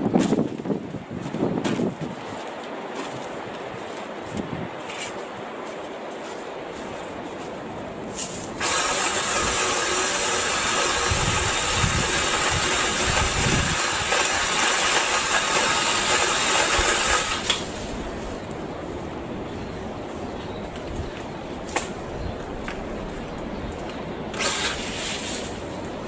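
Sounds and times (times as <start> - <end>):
saw cutting branch: 8.1 - 18.0, 24.3 - 25.6.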